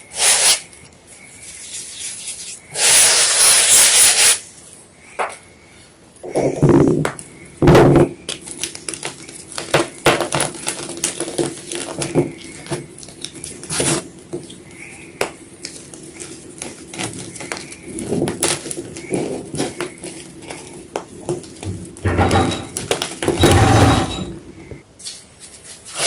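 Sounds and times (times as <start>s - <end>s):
chalk crunching: 1.3s - 4.4s.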